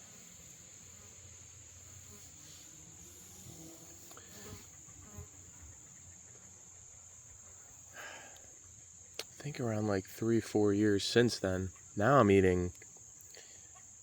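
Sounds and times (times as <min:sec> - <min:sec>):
high-pitched insect chorus: 0:00.0 - 0:14.0.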